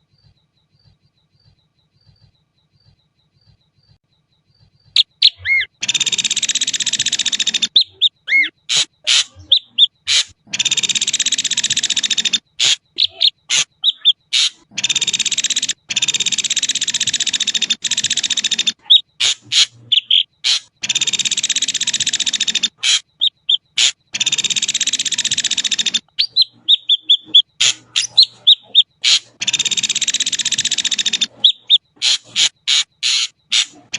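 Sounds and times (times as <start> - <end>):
bird singing harsh buzzy phrases: 0.0 - 33.9
bird whistles and clicks: 0.0 - 33.9.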